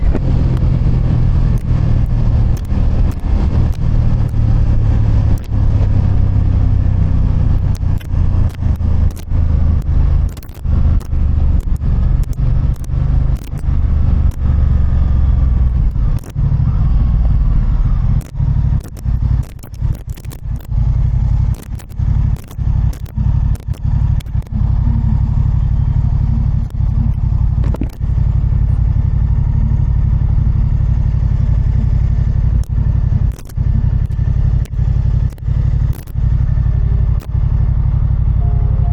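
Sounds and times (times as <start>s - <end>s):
motorcycle engine running: 0.0s - 38.9s
short clicks: 1.3s - 16.6s, 18.1s - 28.4s, 31.1s - 37.6s.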